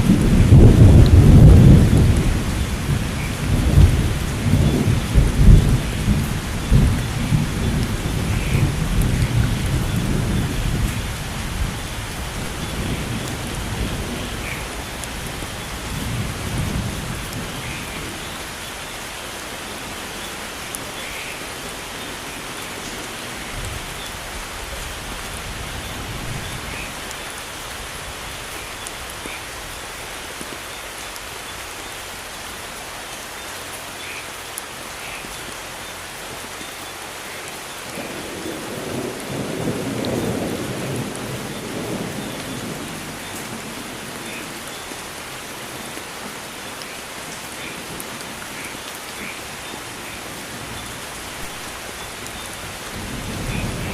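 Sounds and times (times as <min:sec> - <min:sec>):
thunder rolling: 0:00.0 - 0:18.3, 0:24.6 - 0:27.1, 0:50.8 - 0:53.9
steady rain: 0:00.0 - 0:53.9.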